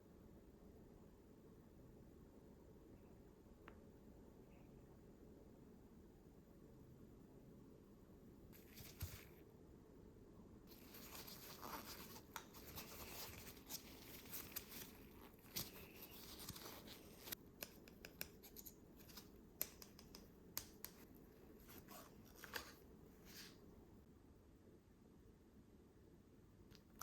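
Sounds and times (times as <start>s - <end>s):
soft rustling: 8.6s - 9.4s, 10.7s - 17.4s
small sharp plastic clicks and taps: 17.6s - 21.1s.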